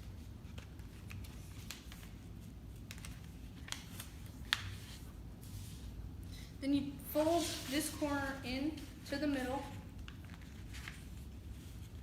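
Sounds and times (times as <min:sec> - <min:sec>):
paper rustling and crinkling: 0:00.0 - 0:05.9, 0:09.6 - 0:12.0
paper crackle: 0:10.0 - 0:12.0.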